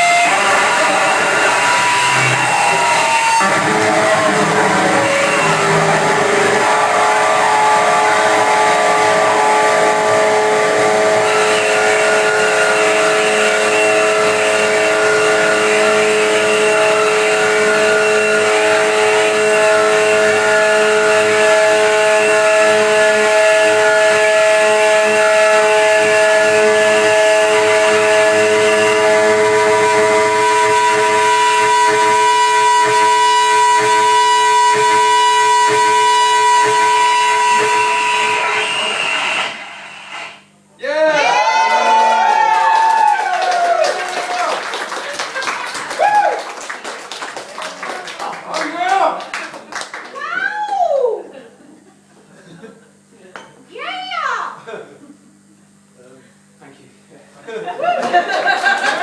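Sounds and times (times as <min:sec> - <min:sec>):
high steady tone: 0:00.0 - 0:40.4
experimental noise music: 0:00.0 - 0:50.0.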